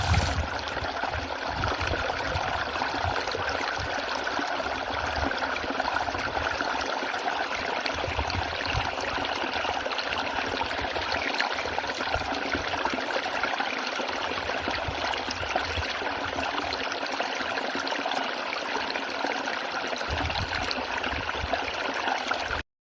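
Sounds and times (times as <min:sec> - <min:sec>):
small waterfall splashing: 0:00.0 - 0:05.7.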